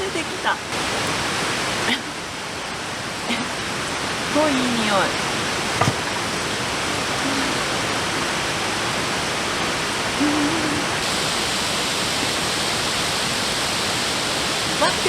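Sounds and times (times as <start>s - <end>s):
mountain stream rushing: 0.0s - 15.0s
low murmured voice: 7.1s - 7.9s, 10.2s - 11.0s.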